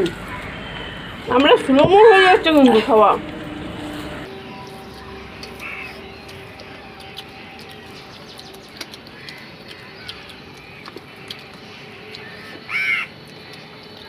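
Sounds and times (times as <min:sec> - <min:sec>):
faint bird calls: 0:00.0 - 0:01.6, 0:04.5 - 0:14.0
bird calling: 0:00.0 - 0:14.0
faint steady hum: 0:00.0 - 0:14.0
clicks and taps of eating: 0:06.6 - 0:14.0.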